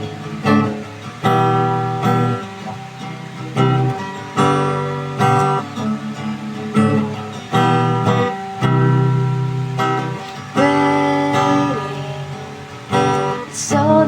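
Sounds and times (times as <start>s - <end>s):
acoustic guitar strumming chords: 0.0s - 14.0s
person singing: 10.2s - 14.0s.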